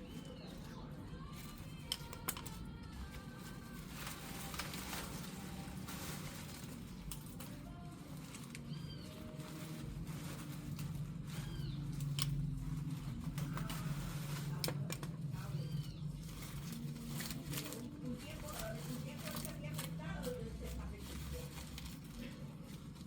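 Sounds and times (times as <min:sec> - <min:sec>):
steady low hum: 0:00.0 - 0:23.0
bird chirping: 0:11.3 - 0:12.5.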